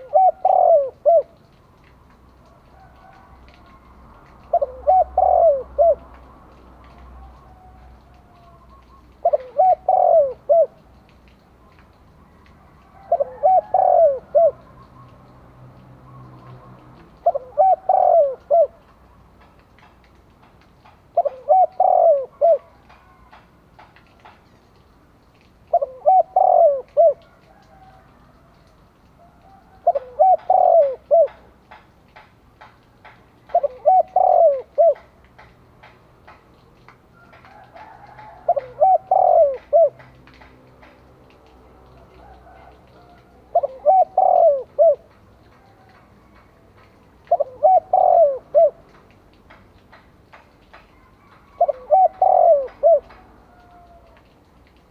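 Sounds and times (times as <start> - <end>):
dove cooing: 0.0 - 1.6, 2.4 - 11.1, 12.7 - 15.3, 16.0 - 18.9, 21.1 - 23.4, 25.7 - 31.5, 33.4 - 35.2, 37.3 - 40.1, 41.9 - 46.1, 46.8 - 48.9, 50.9 - 54.4
faint clicks: 0.0 - 54.9.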